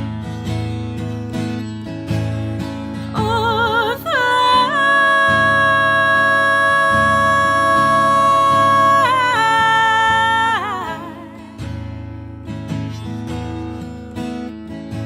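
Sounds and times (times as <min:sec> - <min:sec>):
acoustic guitar: 0:00.0 - 0:15.0
person singing: 0:03.2 - 0:11.6.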